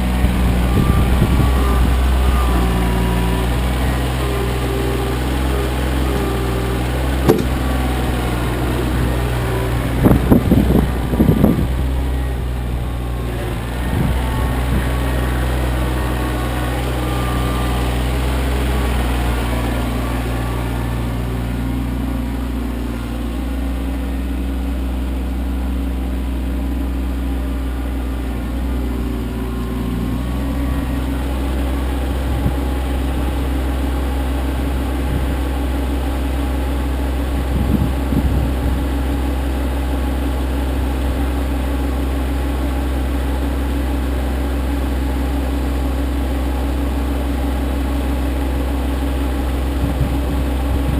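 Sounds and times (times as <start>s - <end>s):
tractor diesel engine running: 0.0s - 50.9s
short knocks: 7.2s - 7.9s.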